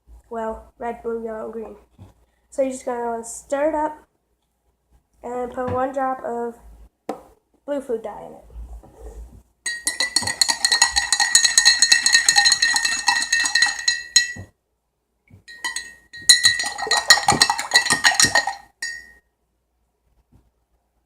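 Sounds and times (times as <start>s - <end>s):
metal spoon clinking in jug: 9.7s - 14.5s, 15.5s - 19.2s.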